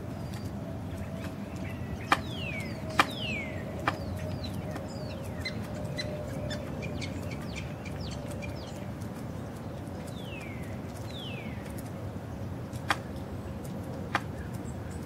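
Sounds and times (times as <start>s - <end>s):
birds chirping and whistling: 0.2s - 8.8s.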